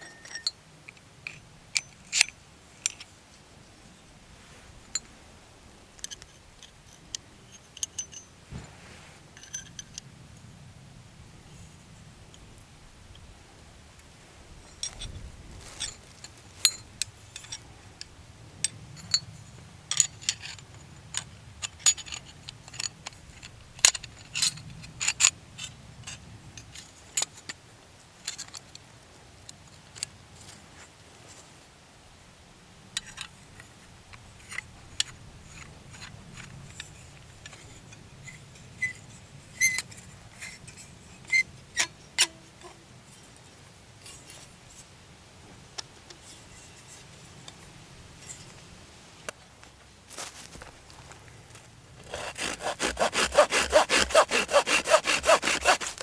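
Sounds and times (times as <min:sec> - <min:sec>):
light metallic clinks: 0:00.0 - 0:00.6, 0:07.4 - 0:08.3.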